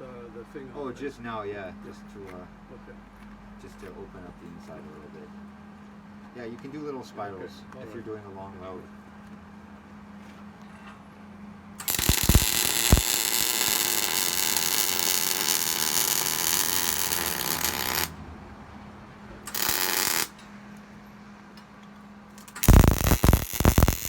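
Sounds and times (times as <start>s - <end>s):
arc pops: 11.8s - 18.2s, 19.5s - 20.4s, 22.4s - 24.0s
welder arc crackling: 11.8s - 18.2s, 19.5s - 20.4s, 22.4s - 24.0s.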